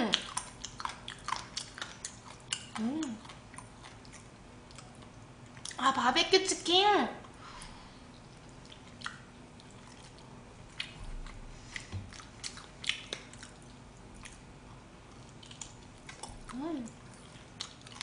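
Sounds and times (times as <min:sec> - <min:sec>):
biting and chewing meat: 0:00.0 - 0:05.8, 0:08.1 - 0:18.0
wet mouth smacks and clicks: 0:12.1 - 0:13.6.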